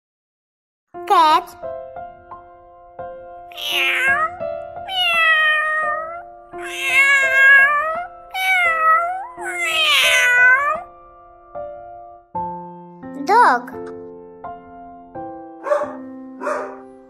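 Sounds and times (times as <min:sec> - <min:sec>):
soft background music: 0:01.0 - 0:17.0
cat meowing: 0:03.5 - 0:10.9.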